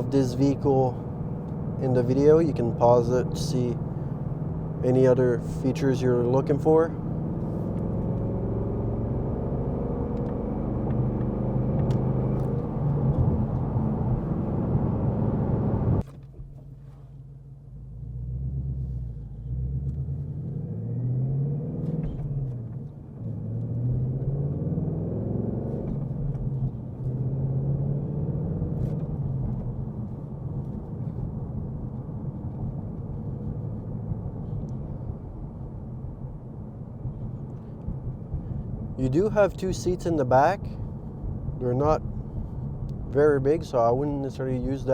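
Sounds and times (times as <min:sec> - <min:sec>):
car engine revving: 0:06.4 - 0:16.0, 0:17.7 - 0:33.7.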